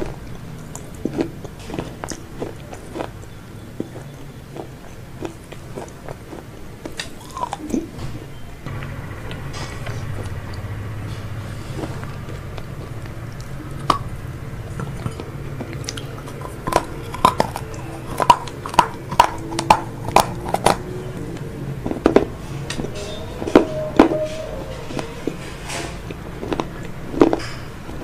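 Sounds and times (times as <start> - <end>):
crunchy chewing: 0.0 - 28.0
low hum: 7.2 - 28.0.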